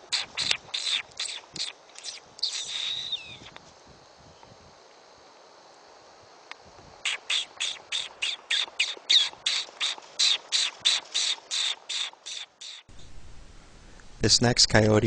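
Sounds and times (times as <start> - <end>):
high-pitched predator call squeaks: 0.0 - 3.5, 7.0 - 12.9.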